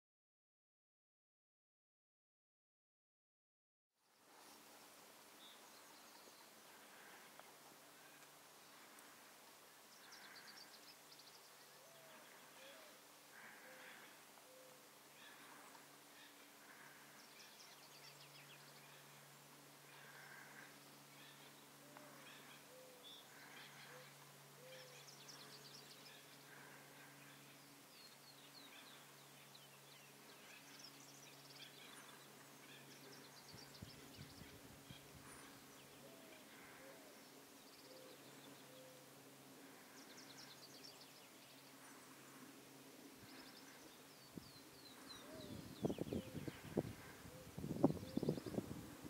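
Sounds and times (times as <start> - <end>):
low steady hum: 4.0 - 49.0
bird chirps and trills: 9.9 - 48.7.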